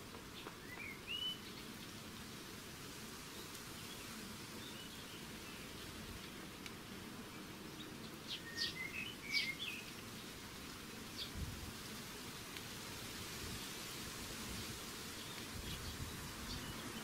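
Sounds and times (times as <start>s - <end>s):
small birds chirping: 0.0s - 2.3s, 3.2s - 12.2s, 13.5s - 17.0s
steady background hiss: 0.0s - 17.0s.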